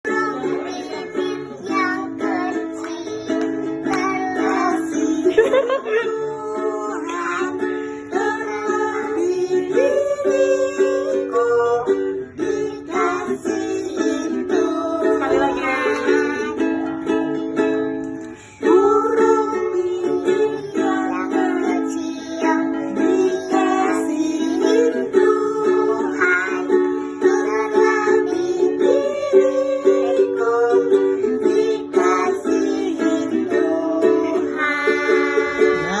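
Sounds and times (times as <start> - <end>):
child singing: 0.0 - 16.9, 18.6 - 36.0
plucked string instrument tune: 0.0 - 36.0
ukulele strummed: 0.0 - 36.0.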